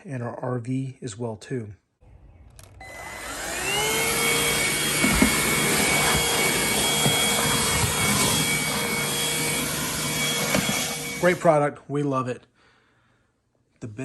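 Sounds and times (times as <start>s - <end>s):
vacuum cleaner motor whining: 2.4s - 11.6s.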